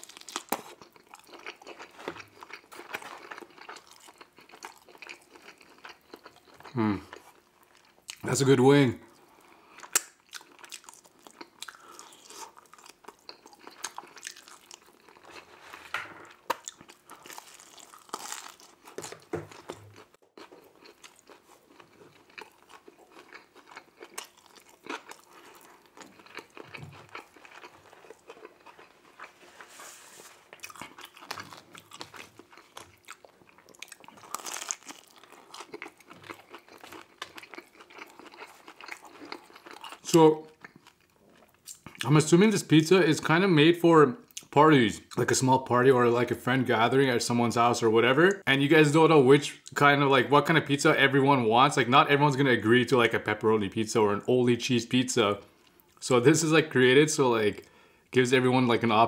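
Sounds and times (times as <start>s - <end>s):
chewing and biting: 0.0s - 8.2s, 9.6s - 15.5s, 16.2s - 29.4s, 30.5s - 42.0s
mouth clicks and smacks: 9.9s - 10.5s.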